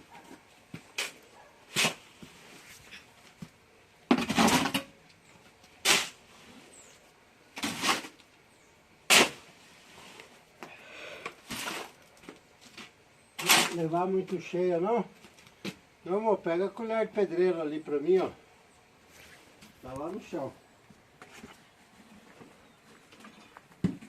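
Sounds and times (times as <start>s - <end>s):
shovel scraping wet concrete: 0.9s - 2.2s, 5.8s - 6.2s, 7.6s - 8.2s, 9.1s - 9.5s, 11.4s - 12.0s, 13.4s - 13.9s.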